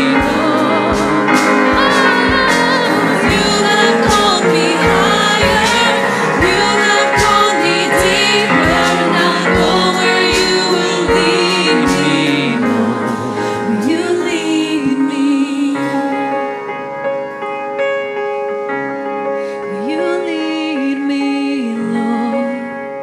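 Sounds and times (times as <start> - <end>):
steady drum beat: 0.0 - 14.3
choir singing: 0.0 - 16.5
woman singing lead vocal: 0.0 - 16.9, 19.4 - 23.0
keyboard: 0.0 - 23.0.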